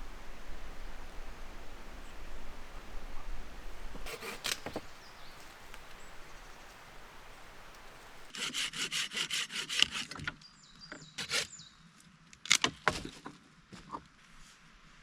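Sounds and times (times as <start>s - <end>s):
hand saw cutting wood: 4.0s - 4.9s, 8.3s - 10.3s, 11.2s - 11.6s.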